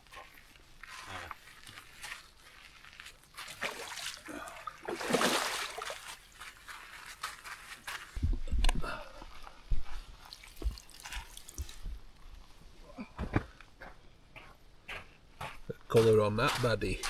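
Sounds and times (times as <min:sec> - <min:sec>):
water sloshing and dripping: 0:03.0 - 0:06.4, 0:09.7 - 0:12.7
water splash: 0:03.5 - 0:06.1
heavy thumps: 0:08.2 - 0:09.0.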